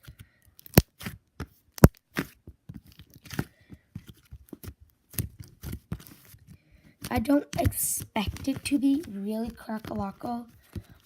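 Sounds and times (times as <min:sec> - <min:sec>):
slime snapping: 0:00.6 - 0:01.1, 0:01.8 - 0:02.3
slime sticky clicks and pops: 0:00.6 - 0:01.1, 0:01.8 - 0:02.3.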